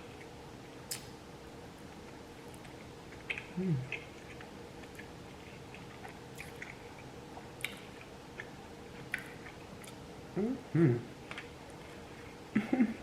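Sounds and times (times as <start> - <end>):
wet mouth clicks: 0.9 - 1.1
person chewing food: 1.9 - 10.0, 11.2 - 12.4.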